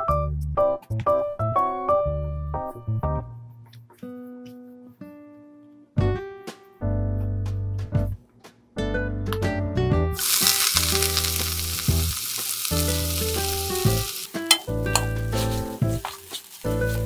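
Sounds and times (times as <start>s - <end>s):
fish sizzling in frying pan: 10.2s - 17.0s.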